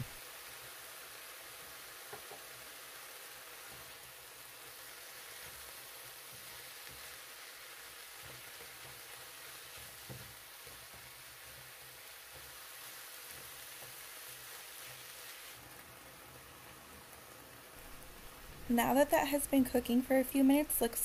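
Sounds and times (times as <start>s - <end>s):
meat and vegetables sizzling in a pan: 0.0s - 21.0s
spatula stirring meat: 3.4s - 16.4s.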